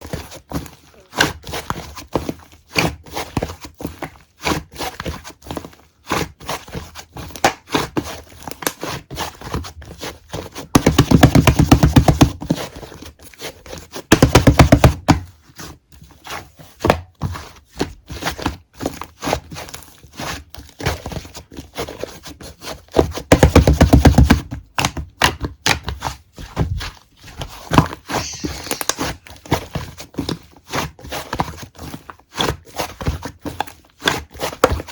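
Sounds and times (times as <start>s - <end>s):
fingertips tapping a squishy object: 10.8s - 12.4s.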